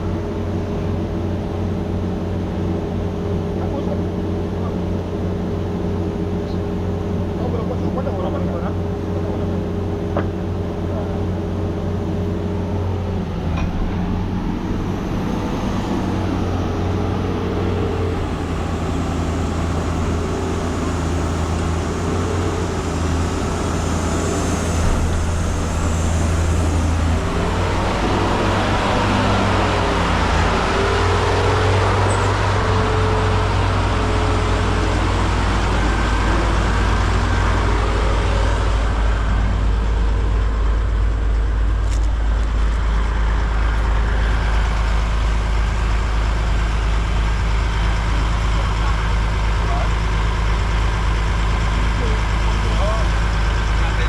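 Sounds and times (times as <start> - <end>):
diesel truck engine running: 0.0 - 54.0
broad rushing noise: 11.8 - 46.6.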